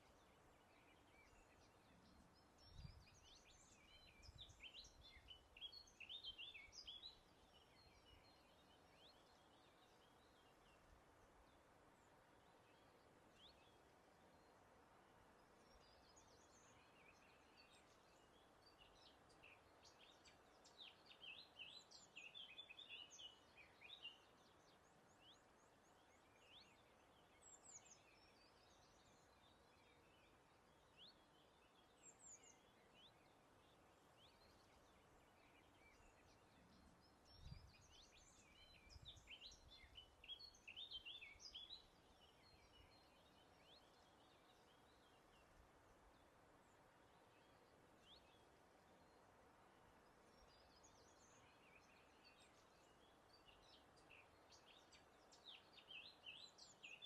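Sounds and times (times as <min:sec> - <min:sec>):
soft hiss of breeze: 0:00.0 - 0:57.0
songbirds chirping: 0:00.0 - 0:57.0.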